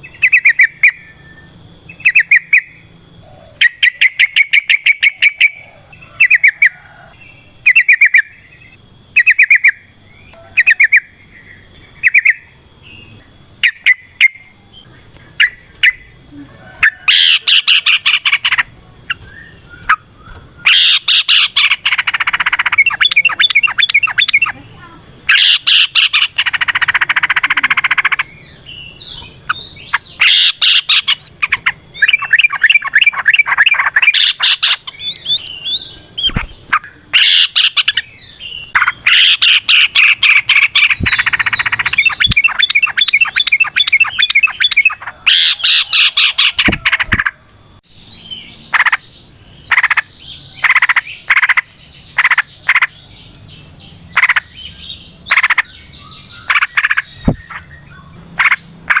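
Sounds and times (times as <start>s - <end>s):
bulbul singing bubbling phrases: 21.1s - 28.3s.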